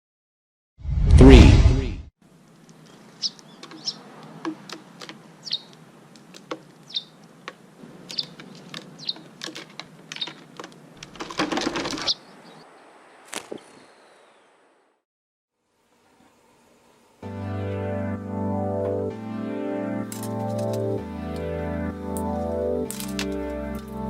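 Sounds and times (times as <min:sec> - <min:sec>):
rustling: 0:02.4 - 0:12.1
small bird chirping: 0:02.6 - 0:10.6, 0:11.9 - 0:14.5.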